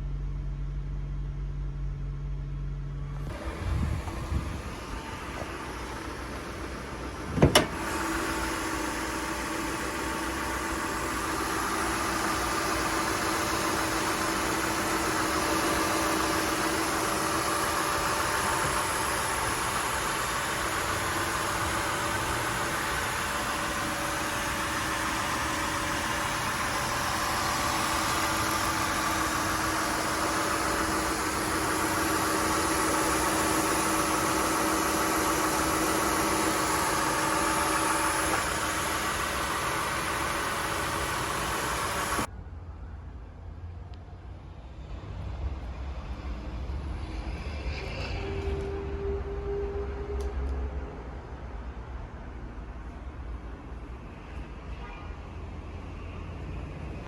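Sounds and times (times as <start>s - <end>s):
car engine starting and idling: 0.0s - 42.3s.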